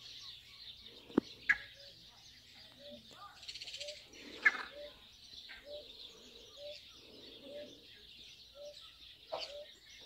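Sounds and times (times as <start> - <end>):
high chatter of birds: 0.0 - 10.0.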